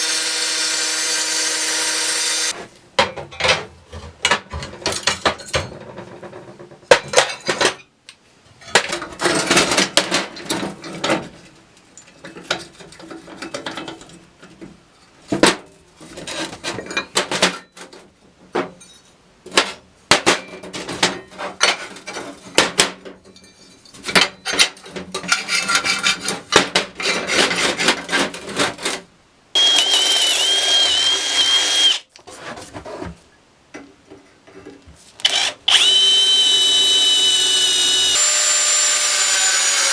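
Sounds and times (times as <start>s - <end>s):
small power tool whining: 0.0s - 2.6s, 29.6s - 32.0s, 35.2s - 39.9s.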